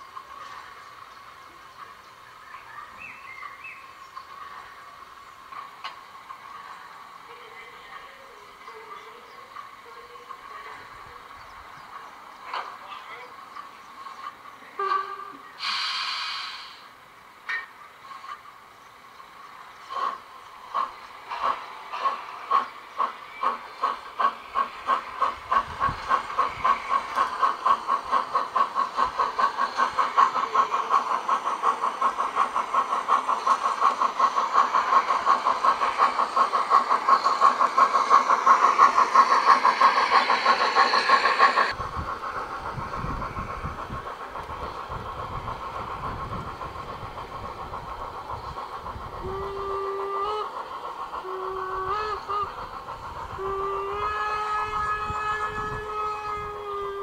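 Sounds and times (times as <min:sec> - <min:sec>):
locomotive running noise: 0:00.0 - 0:57.0
model steam locomotive chuffing: 0:00.0 - 0:57.0
two-tone locomotive whistle: 0:14.8 - 0:16.3, 0:49.2 - 0:50.6, 0:51.2 - 0:52.6, 0:53.3 - 0:57.0.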